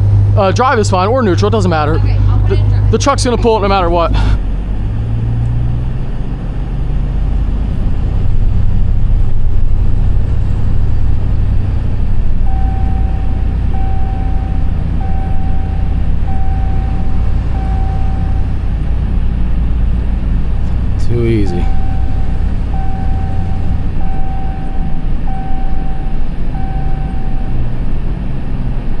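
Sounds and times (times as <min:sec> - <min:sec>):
truck engine under load: 0:00.0 - 0:29.0
electronic warning chime beeps: 0:12.5 - 0:18.5, 0:21.4 - 0:27.5.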